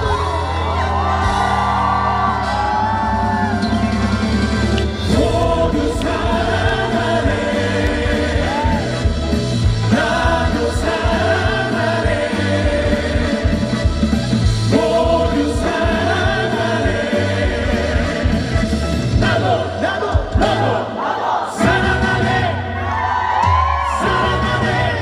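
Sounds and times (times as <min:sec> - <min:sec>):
steady band beat: 0:00.0 - 0:22.6
voices singing together: 0:05.0 - 0:25.0.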